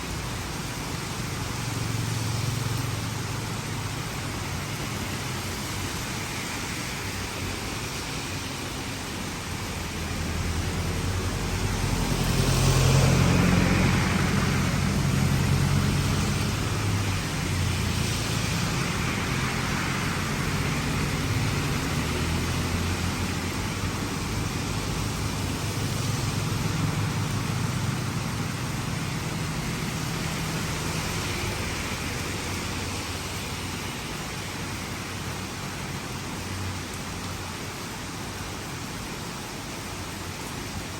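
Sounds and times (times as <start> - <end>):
rain hiss: 0.0 - 40.9
vehicles driving past in rain: 0.0 - 40.9.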